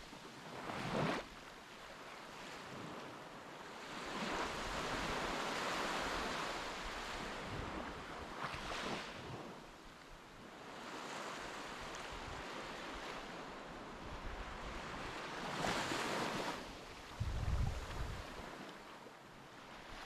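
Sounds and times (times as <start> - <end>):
wind buffeting microphone: 17.1 - 18.6.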